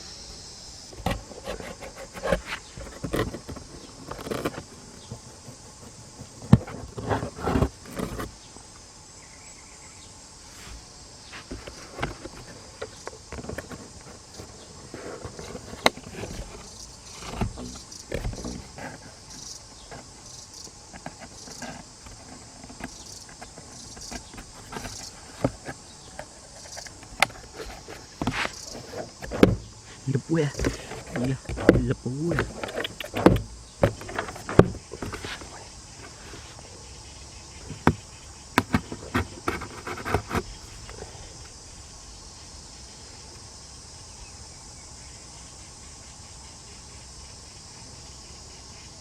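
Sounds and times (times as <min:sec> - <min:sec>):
insects chirring: 0:00.0 - 0:49.0
knocks and rustles: 0:00.9 - 0:08.4, 0:10.6 - 0:36.9, 0:37.5 - 0:41.5.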